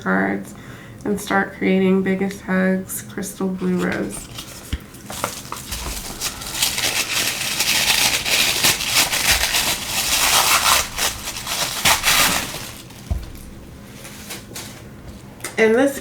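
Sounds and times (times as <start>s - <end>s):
packaging crinkling and rustling: 3.6s - 15.0s
soft thumps: 5.6s - 14.2s.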